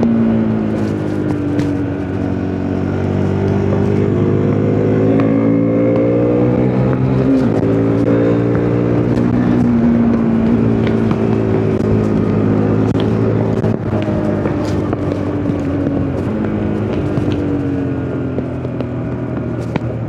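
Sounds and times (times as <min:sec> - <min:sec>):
motorcycle engine running hard: 0:00.0 - 0:20.0.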